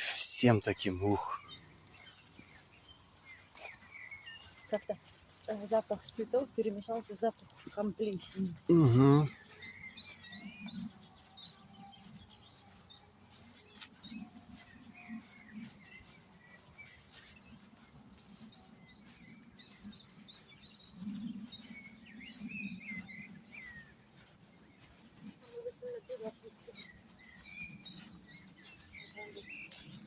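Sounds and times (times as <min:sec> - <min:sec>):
songbirds chirping and singing: 0:00.0 - 0:30.0.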